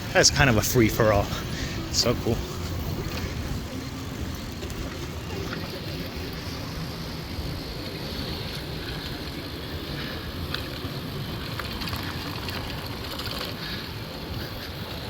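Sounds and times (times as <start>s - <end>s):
bicycle clicks and rattles: 0.0s - 15.0s
wind rumbling over microphone: 0.0s - 15.0s.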